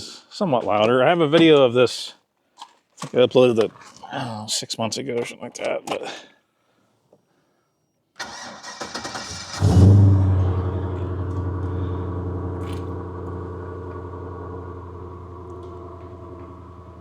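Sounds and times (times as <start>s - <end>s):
engine catching and idling: 8.2s - 17.0s
engine cranking on starter: 8.2s - 17.0s.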